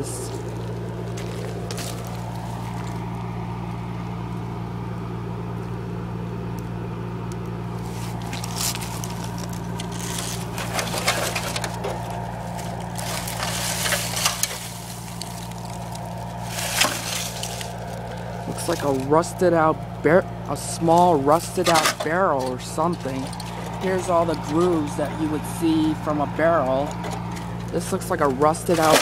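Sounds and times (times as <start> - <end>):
crunching footsteps: 0.0 - 3.4, 7.4 - 19.7, 20.4 - 29.0
low mechanical hum: 0.0 - 29.0.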